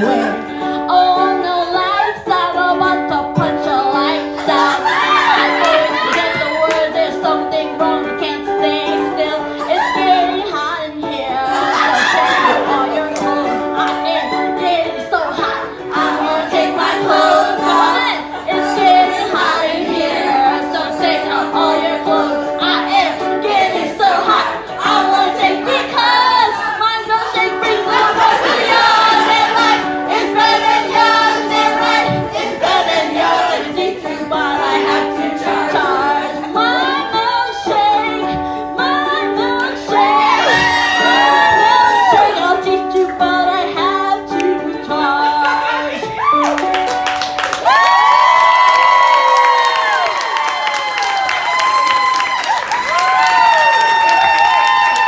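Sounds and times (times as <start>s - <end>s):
backing track: 0.0s - 55.0s
people singing hip-hop sing-along: 11.3s - 46.2s.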